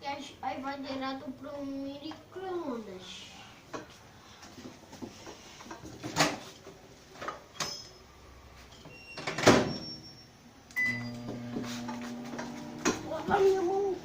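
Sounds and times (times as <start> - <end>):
short beep: 9.7 - 11.2
microwave humming: 10.7 - 14.0.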